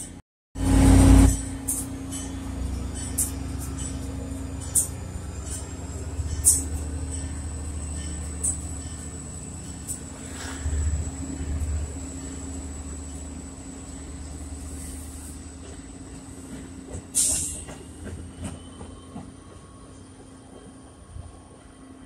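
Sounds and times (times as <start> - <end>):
train wheel clicks: 2.9 - 10.1.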